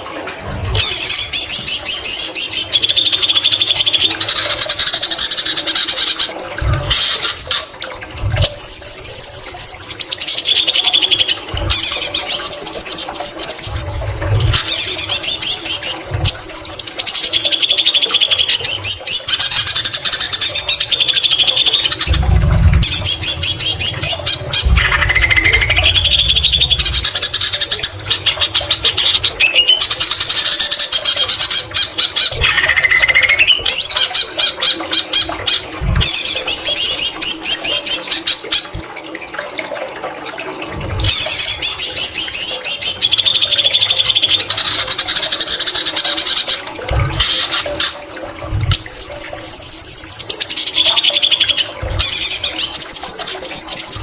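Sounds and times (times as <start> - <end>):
low thumps: 22.0 - 29.4.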